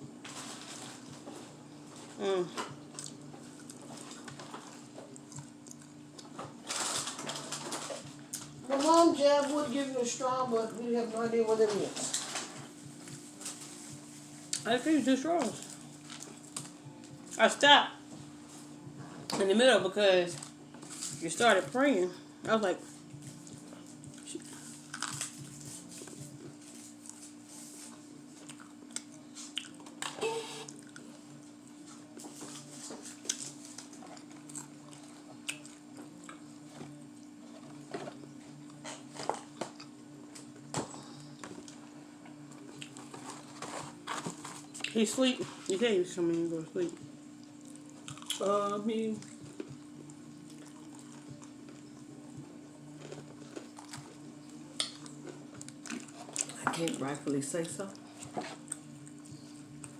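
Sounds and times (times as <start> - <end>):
steady low hum: 0.0 - 59.9
chewing fried chicken crunches: 23.3 - 25.7, 28.4 - 30.0, 31.9 - 36.4, 47.4 - 48.5, 49.2 - 51.9, 52.9 - 54.2, 54.8 - 57.0.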